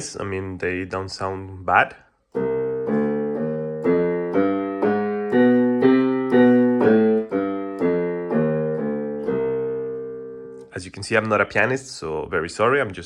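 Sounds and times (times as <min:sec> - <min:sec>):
piano notes on keyboard: 0:02.3 - 0:11.4.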